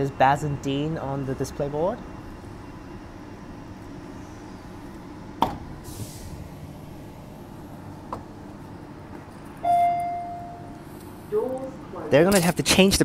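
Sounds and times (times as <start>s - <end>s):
electric train interior hum: 0.0s - 12.2s
brief hiss: 5.8s - 6.4s.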